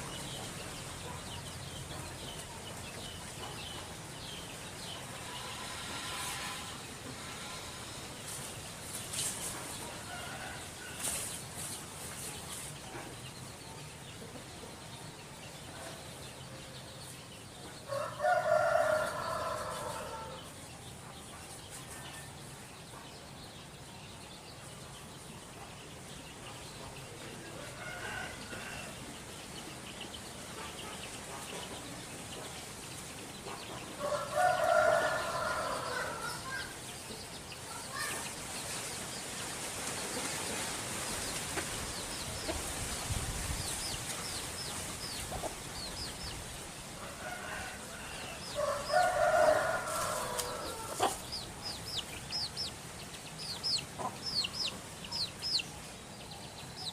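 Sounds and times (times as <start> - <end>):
rooster crowing: 17.9 - 20.5, 27.7 - 29.0, 34.0 - 36.7, 47.0 - 51.2.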